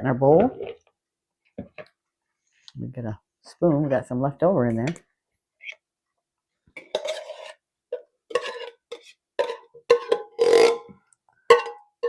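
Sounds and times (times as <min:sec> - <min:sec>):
metal spoon scraping tin can: 0:06.8 - 0:07.6, 0:08.3 - 0:10.9.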